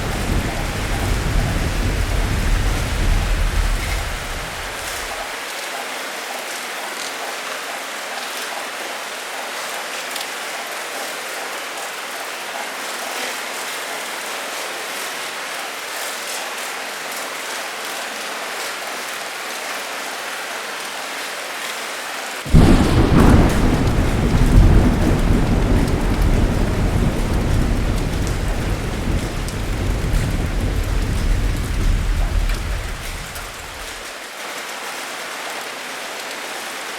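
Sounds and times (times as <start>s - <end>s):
loud thunderclap: 0.0s - 5.3s, 22.5s - 34.0s
thunder rumbling: 0.0s - 5.3s, 22.5s - 34.0s
rain pouring: 0.0s - 36.9s.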